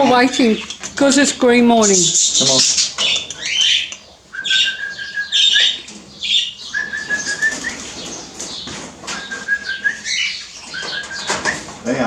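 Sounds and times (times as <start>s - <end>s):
caged birds chirping: 0.0s - 12.0s
long whistle-like bird notes: 3.4s - 8.1s, 9.1s - 11.7s.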